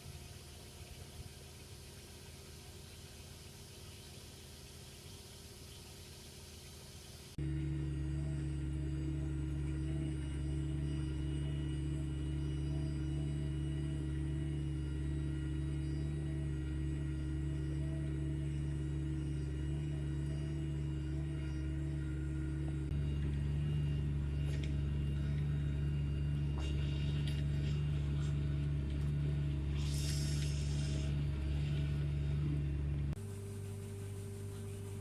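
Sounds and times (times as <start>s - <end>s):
farm machinery engine drone: 0.0s - 35.0s
quieter different drone: 7.3s - 35.0s.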